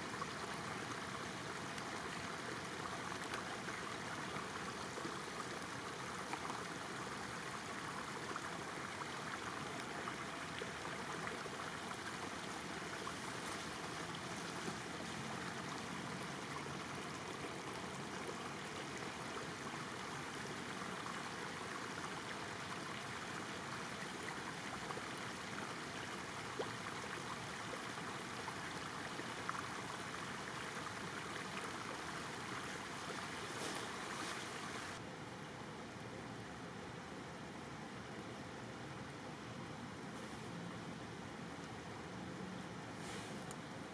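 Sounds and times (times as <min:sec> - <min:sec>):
floodwater rushing: 0:00.0 - 0:35.0.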